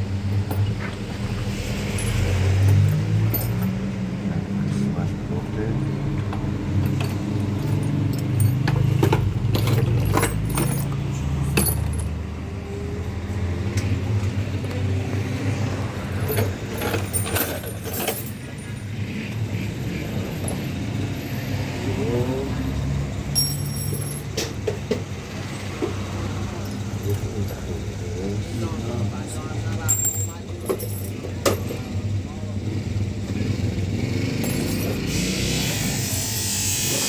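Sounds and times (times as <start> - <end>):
vehicle engine humming: 0.0 - 37.0
small metal pieces clinking: 6.8 - 11.0, 34.4 - 35.2.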